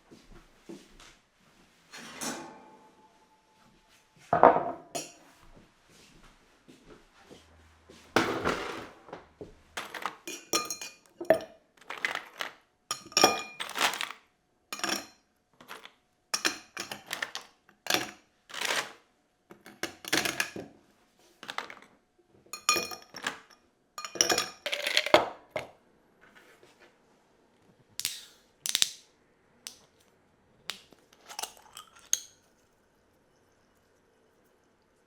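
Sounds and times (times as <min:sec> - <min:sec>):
dishes and utensils clinking: 0:04.3 - 0:05.4, 0:09.8 - 0:14.2, 0:14.8 - 0:18.9, 0:22.6 - 0:25.7, 0:31.1 - 0:32.8.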